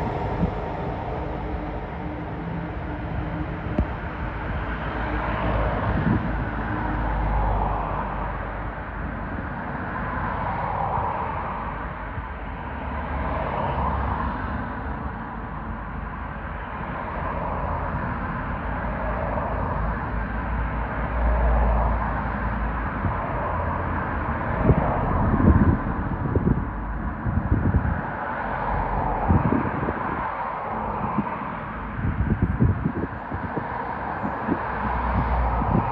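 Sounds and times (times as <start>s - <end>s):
train rushing past: 0.0s - 7.6s
wind buffeting microphone: 0.0s - 8.3s, 22.9s - 35.9s.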